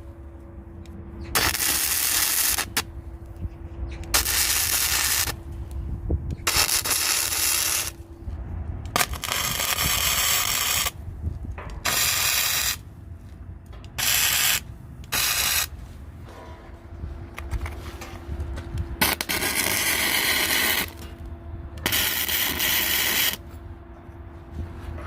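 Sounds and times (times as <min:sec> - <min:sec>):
faint steady hum: 0:00.0 - 0:25.0
harsh scraping strokes: 0:06.4 - 0:11.0.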